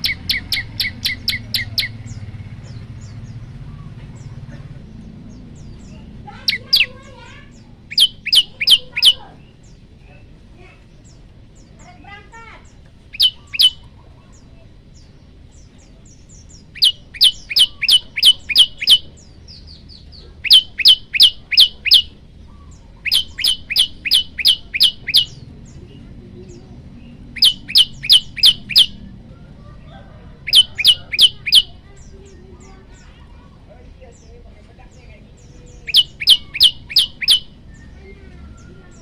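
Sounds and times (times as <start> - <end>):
bird singing high sharp notes: 0.0 - 2.3, 5.6 - 9.6, 13.1 - 13.9, 16.3 - 19.8, 20.4 - 22.2, 22.8 - 25.5, 27.3 - 29.1, 30.5 - 31.9, 35.4 - 39.0.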